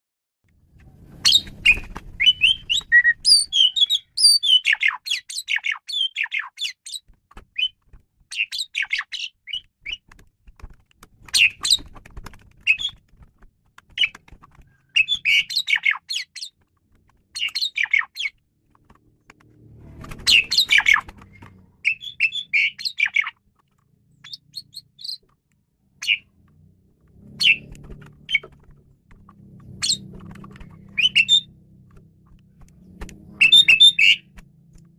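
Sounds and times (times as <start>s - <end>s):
starling singing: 1.2s - 7.0s, 12.7s - 13.0s, 14.8s - 16.6s, 17.3s - 18.4s, 20.2s - 23.4s, 24.2s - 25.2s, 26.0s - 26.3s, 27.3s - 28.6s, 29.7s - 31.6s, 33.3s - 34.4s.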